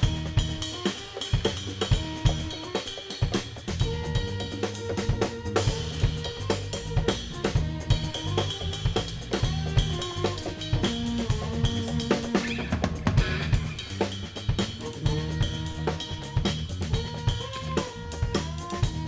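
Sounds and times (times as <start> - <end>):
bass line: 0.0 - 0.7, 1.5 - 2.6, 3.7 - 19.0
drum kit beat: 0.0 - 19.0
held higher notes: 9.6 - 18.8.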